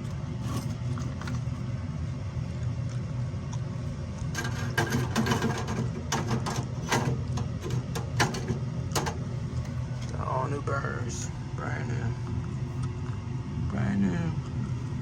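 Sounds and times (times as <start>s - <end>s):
low hum: 0.0s - 15.0s
metal clicks and clanks: 4.4s - 9.2s.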